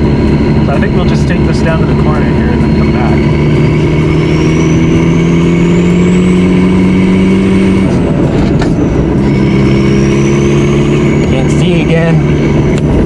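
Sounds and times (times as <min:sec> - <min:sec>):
engine knock: 0:00.0 - 0:05.6
diesel engine pulling: 0:00.0 - 0:13.0
high turbo whine: 0:00.0 - 0:13.0.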